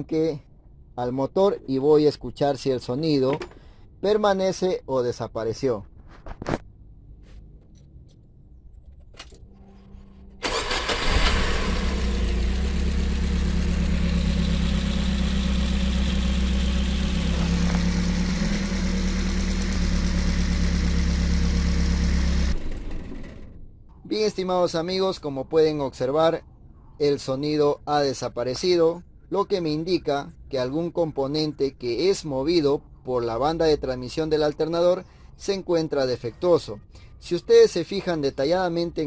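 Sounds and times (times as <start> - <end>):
minivan engine idling: 10.4 - 23.6.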